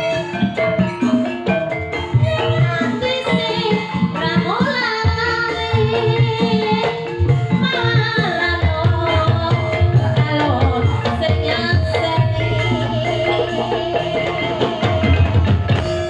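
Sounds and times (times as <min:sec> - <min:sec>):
gamelan-style pitched notes: 0:00.0 - 0:16.0
hand drums beating: 0:00.0 - 0:16.0
person singing: 0:07.7 - 0:16.0.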